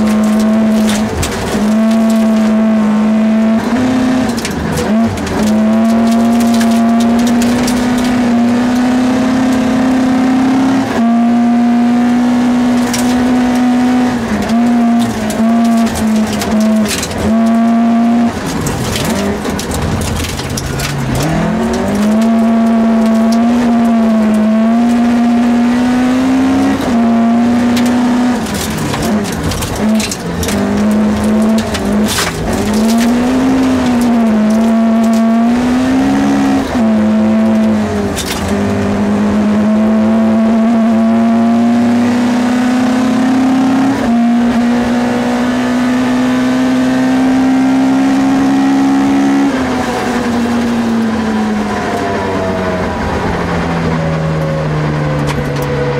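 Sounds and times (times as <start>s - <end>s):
gravel clattering and knocking: 0.0s - 8.9s, 12.7s - 39.2s
rally car engine revving: 0.0s - 55.9s.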